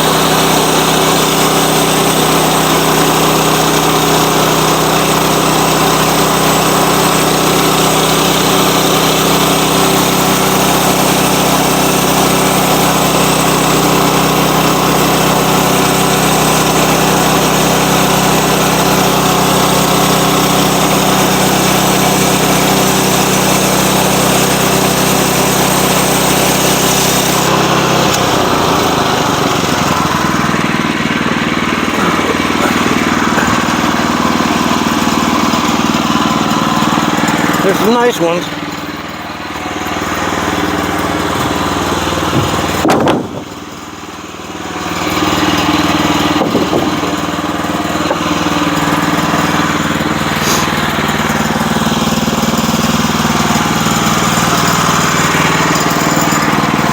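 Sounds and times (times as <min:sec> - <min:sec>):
sawmill engine running: 0:00.0 - 0:56.9.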